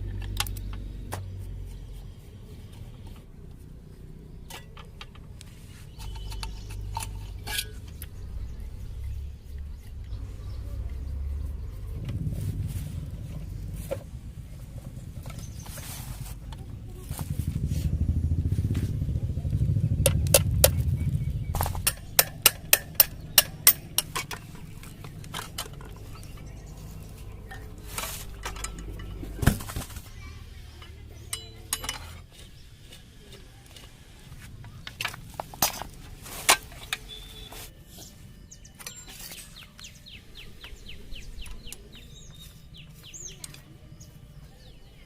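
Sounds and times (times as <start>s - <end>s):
low rumble: 5.2s - 31.5s
tools clinking on metal: 5.9s - 8.2s, 21.6s - 26.5s, 27.5s - 29.4s, 30.8s - 32.4s
sharp metal taps: 21.5s - 26.0s.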